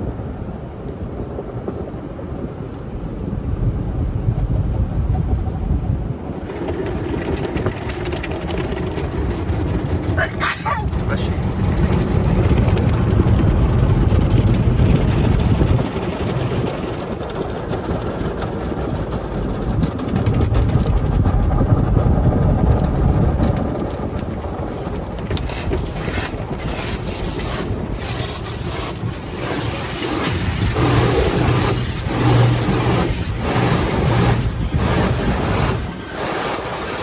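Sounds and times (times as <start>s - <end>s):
car wash machinery rumble: 24.6s - 37.0s
brushes swishing on car: 24.7s - 37.0s
water spraying against car: 24.7s - 37.0s.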